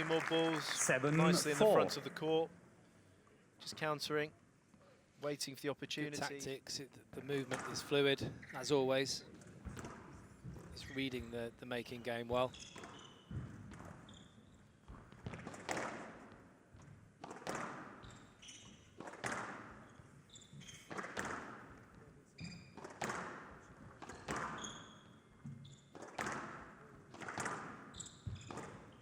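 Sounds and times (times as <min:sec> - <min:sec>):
ball hitting court walls: 0:09.6 - 0:10.7, 0:12.6 - 0:14.0, 0:14.9 - 0:16.4, 0:17.2 - 0:18.3, 0:19.0 - 0:19.9, 0:20.6 - 0:21.9, 0:22.6 - 0:28.9
shoes squeaking on court floor: 0:12.3 - 0:15.8, 0:17.3 - 0:29.0
racket striking squash ball: 0:15.3 - 0:16.4, 0:17.2 - 0:18.3, 0:19.0 - 0:19.9, 0:20.9 - 0:21.8, 0:22.7 - 0:24.8, 0:25.9 - 0:28.8.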